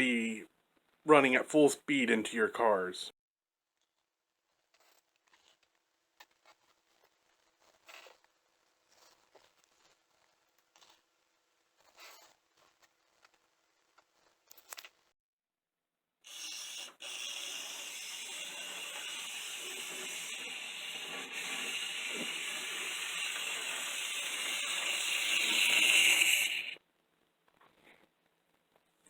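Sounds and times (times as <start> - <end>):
model train motor whirring: 16.3 - 26.8.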